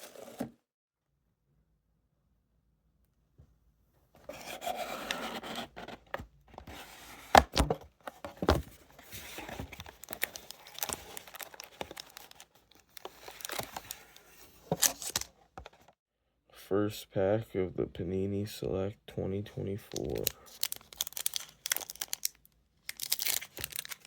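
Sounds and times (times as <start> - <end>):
plastic packaging tearing and crinkling: 9.4 - 15.3, 20.0 - 24.0.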